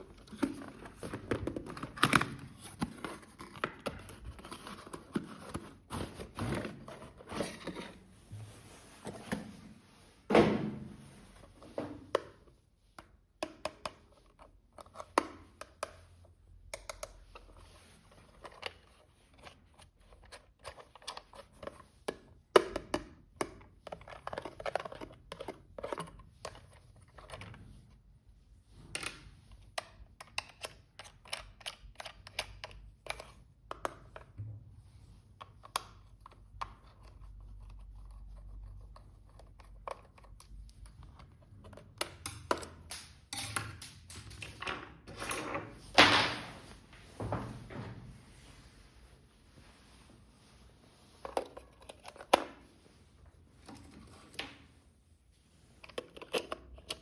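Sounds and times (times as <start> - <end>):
plastic and cardboard clicks and rustles: 0.0 - 8.1, 11.5 - 28.0, 28.7 - 34.4, 51.2 - 52.8, 55.6 - 57.0.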